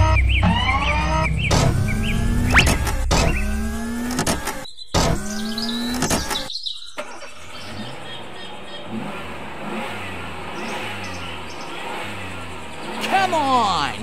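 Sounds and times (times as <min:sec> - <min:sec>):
engine whine: 0:00.0 - 0:14.0
outdoor background noise: 0:00.0 - 0:14.0
faint bird chirps: 0:04.6 - 0:09.0.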